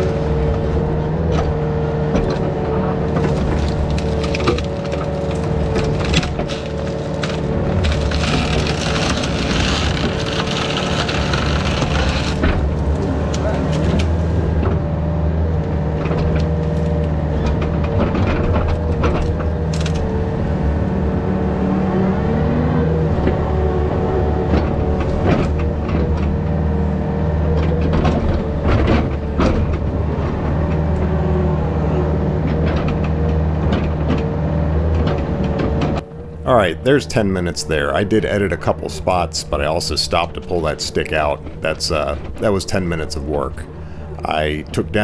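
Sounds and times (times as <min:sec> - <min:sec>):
knocks and clanks: 0:00.0 - 0:15.0, 0:15.8 - 0:21.6
excavator diesel engine: 0:00.0 - 0:45.0
hydraulic whine: 0:00.0 - 0:45.0.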